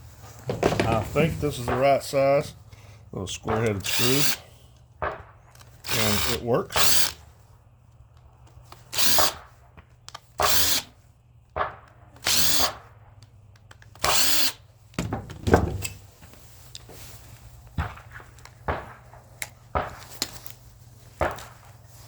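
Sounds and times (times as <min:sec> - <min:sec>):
cordless screwdriver whirring: 0:03.8 - 0:04.4, 0:05.6 - 0:07.2, 0:08.8 - 0:09.4, 0:10.4 - 0:10.9, 0:12.2 - 0:12.8, 0:13.9 - 0:14.6
clicks and knocks: 0:15.0 - 0:16.0.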